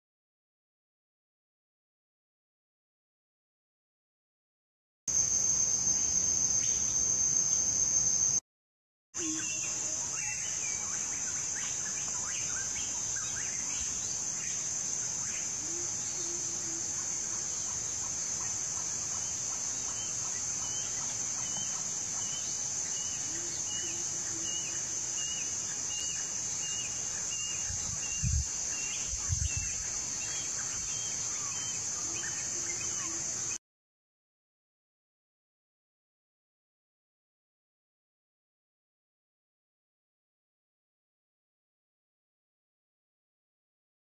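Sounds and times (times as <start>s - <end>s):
high insect drone: 5.1s - 8.4s, 9.2s - 33.6s
bird calling: 9.2s - 13.8s.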